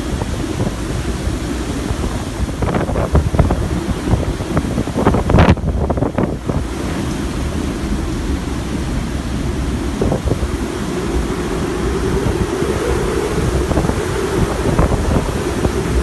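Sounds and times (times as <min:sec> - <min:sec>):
strong wind buffeting microphone: 0:00.0 - 0:16.0.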